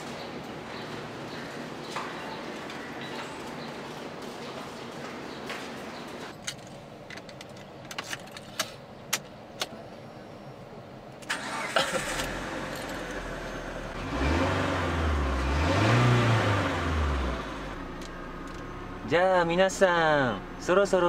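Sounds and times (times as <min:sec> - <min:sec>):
car engine revving: 0:11.3 - 0:21.0.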